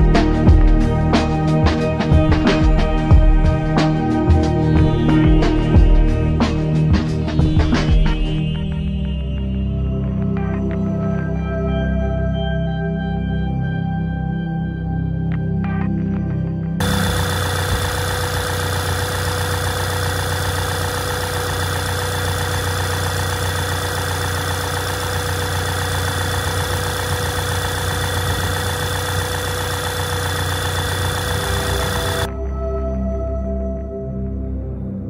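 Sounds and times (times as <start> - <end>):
car engine idling: 16.8 - 32.3.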